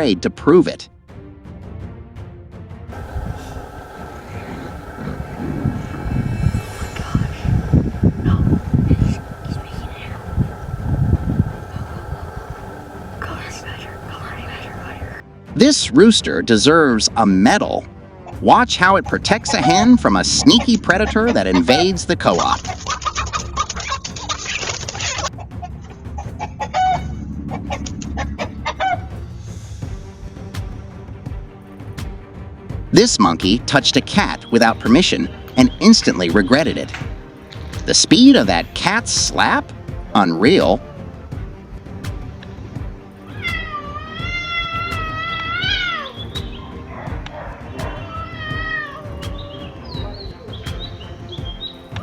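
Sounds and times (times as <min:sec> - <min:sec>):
chickens squawking and clucking: 0:03.0 - 0:06.3, 0:07.6 - 0:15.2, 0:25.2 - 0:29.2
cat yowling: 0:43.2 - 0:50.1.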